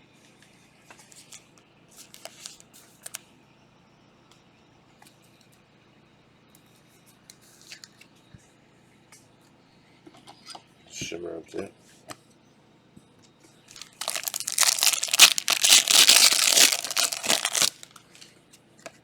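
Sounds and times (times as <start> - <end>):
card packs clicking and snipping: 13.8 - 18.0.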